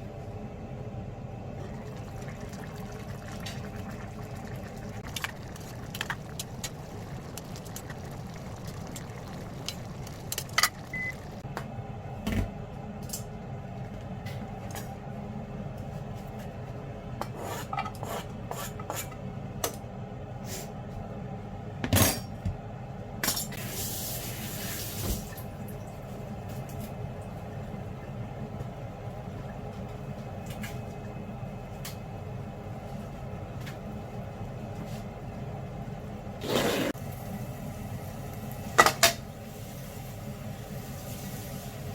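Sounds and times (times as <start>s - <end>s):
steady low hum: 0.0s - 23.5s.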